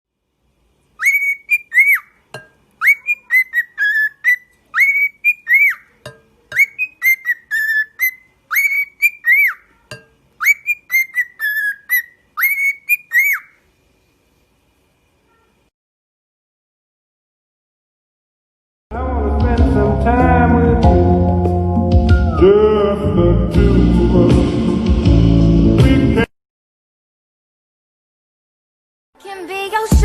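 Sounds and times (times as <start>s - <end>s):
parrot whistling a tune: 1.0s - 2.2s, 2.8s - 5.9s, 6.6s - 9.7s, 10.4s - 13.6s.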